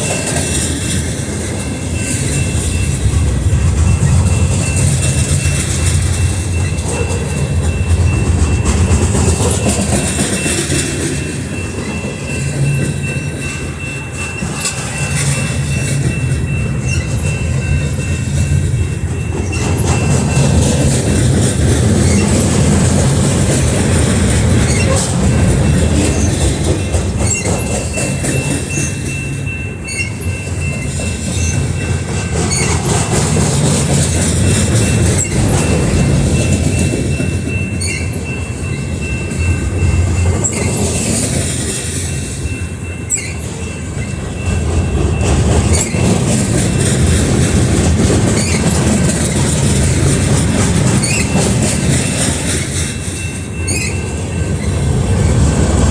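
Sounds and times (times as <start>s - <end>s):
freight train rumbling: 0.0s - 55.9s
wheels clacking over rail joints: 0.0s - 55.9s
high wheel squeal: 3.9s - 18.4s, 21.9s - 22.6s, 24.2s - 26.6s, 27.2s - 32.9s, 34.4s - 47.2s, 48.3s - 55.9s.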